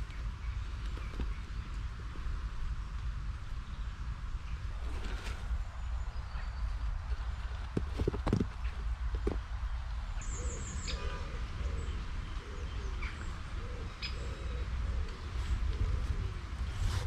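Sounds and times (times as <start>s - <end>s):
bird cooing: 10.2s - 17.0s.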